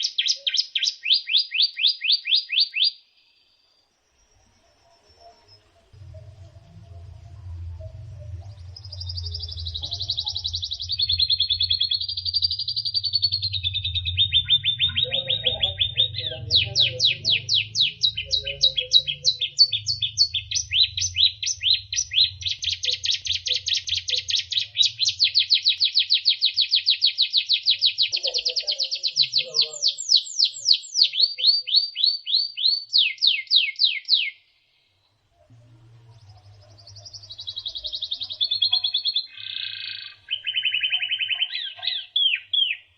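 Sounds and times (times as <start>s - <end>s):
bird singing fast trills: 0.0s - 34.6s, 35.8s - 42.9s
low hum: 3.9s - 25.8s, 35.0s - 38.9s.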